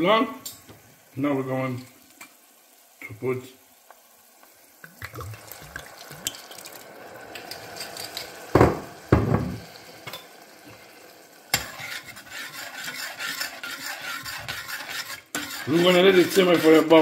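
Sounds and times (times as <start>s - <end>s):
wine pouring into pan: 0.0s - 15.7s
food sizzling in frying pan: 0.0s - 17.0s
stirring scraping the pan: 7.3s - 17.0s.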